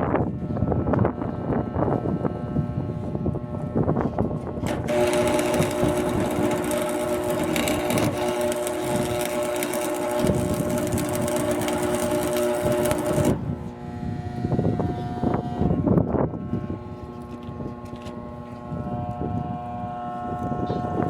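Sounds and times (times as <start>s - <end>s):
electrical buzz: 0.2s - 21.0s
arc welding crackling: 4.5s - 13.8s.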